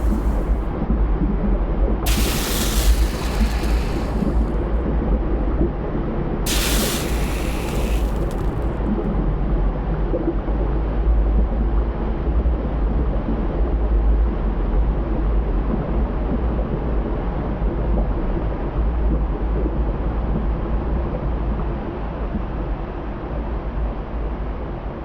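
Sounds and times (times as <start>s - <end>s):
hissing rush: 0.0s - 0.6s, 2.1s - 4.6s, 6.5s - 8.7s
volcanic eruption rumble: 0.0s - 0.7s, 2.1s - 4.8s, 6.5s - 8.7s.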